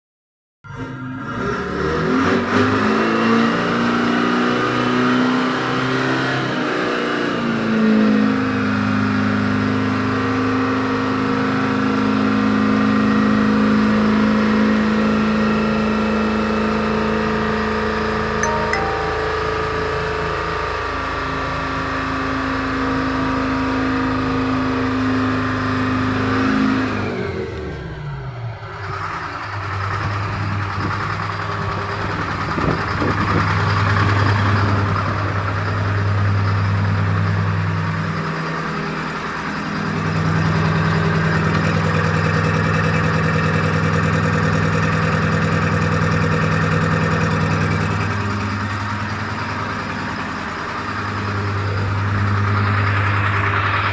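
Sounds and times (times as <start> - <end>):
diesel truck engine running: 27.2 - 53.9.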